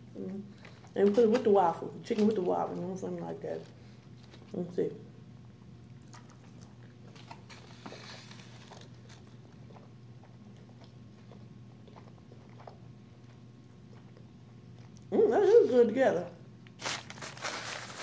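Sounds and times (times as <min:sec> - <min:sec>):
low steady hum: 0:00.0 - 0:18.0
person chewing crunchy food: 0:05.9 - 0:15.1.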